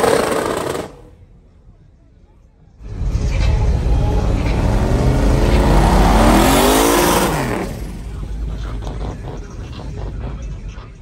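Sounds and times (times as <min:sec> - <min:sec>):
car engine revving: 0:02.8 - 0:11.0.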